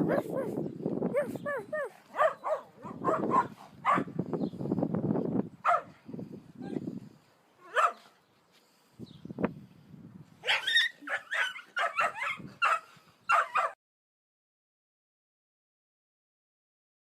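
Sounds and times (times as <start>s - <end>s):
dog yipping and barking: 0.0s - 4.1s, 5.6s - 5.9s, 7.7s - 8.1s, 10.4s - 13.8s.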